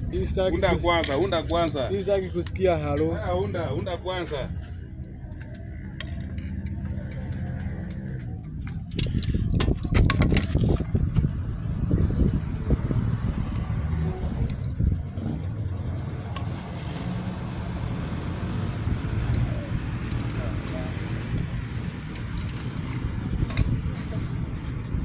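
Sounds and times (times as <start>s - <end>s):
metal tools clinking: 0.0s - 4.4s, 5.5s - 11.0s, 14.2s - 25.0s
engine running: 0.0s - 25.0s.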